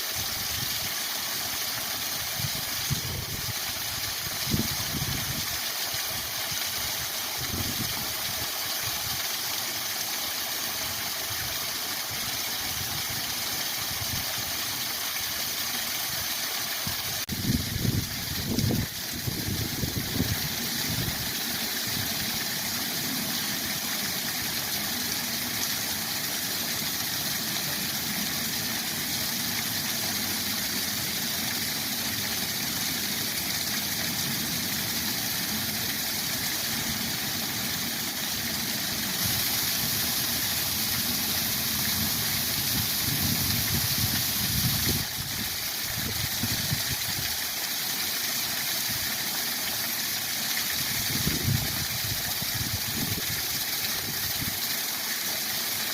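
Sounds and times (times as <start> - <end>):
waterfall rushing: 13.4 - 55.9.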